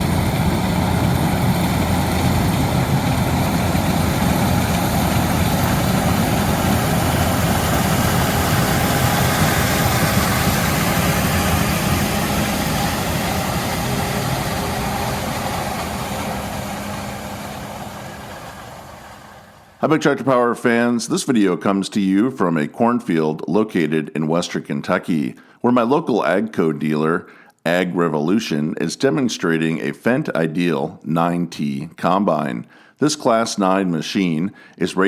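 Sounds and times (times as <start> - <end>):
combine harvester droning: 0.0 - 20.0.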